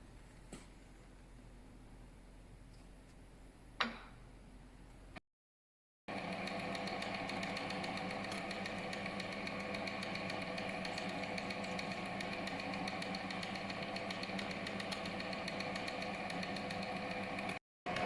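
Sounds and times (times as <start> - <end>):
machine tool humming and ticking: 6.1 - 18.0.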